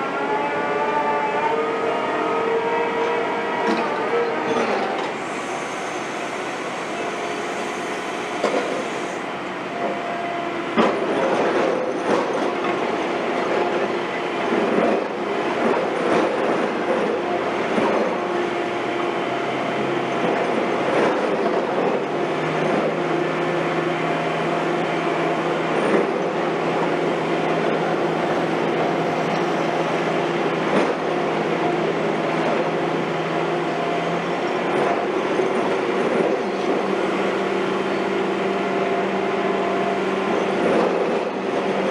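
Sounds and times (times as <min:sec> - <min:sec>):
heavy construction machinery: 0:10.6 - 0:41.9.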